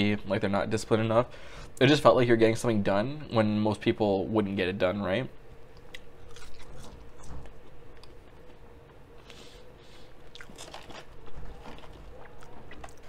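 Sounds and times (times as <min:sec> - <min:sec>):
person chewing crisp fries: 0:05.8 - 0:09.4, 0:10.0 - 0:13.0.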